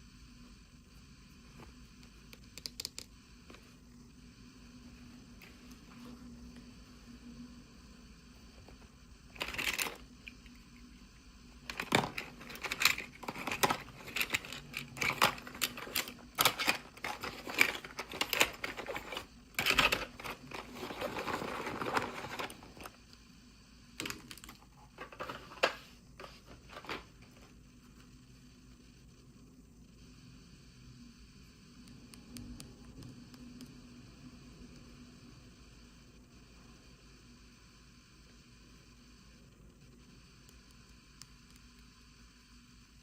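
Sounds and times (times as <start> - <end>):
plastic toy pieces clicking: 11.7 - 20.7
packaging rustling: 11.7 - 22.9.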